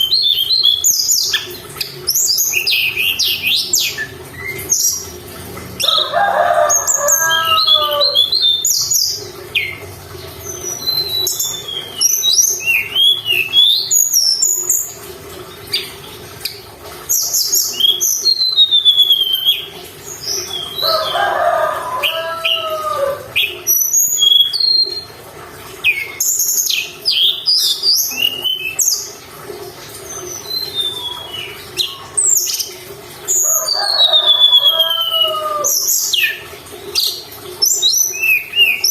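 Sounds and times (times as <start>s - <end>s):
bird singing chirps and whistles: 0.0s - 1.5s, 10.5s - 14.9s, 17.1s - 20.8s, 23.4s - 25.0s, 25.9s - 29.1s, 30.2s - 32.7s.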